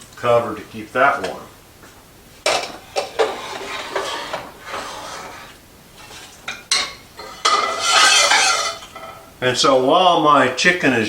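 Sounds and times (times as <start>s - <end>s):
pots scraping clatter with ringing: 2.4s - 9.4s
metal utensils clinking: 2.5s - 4.6s, 6.1s - 9.3s.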